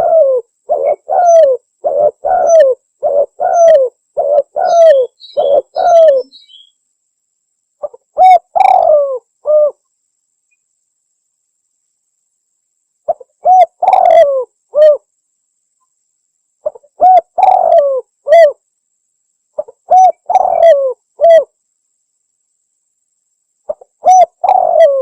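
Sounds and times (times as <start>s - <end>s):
dove cooing: 0.0s - 6.7s, 7.8s - 9.8s, 13.1s - 15.1s, 16.6s - 18.6s, 19.6s - 21.5s, 23.7s - 25.0s.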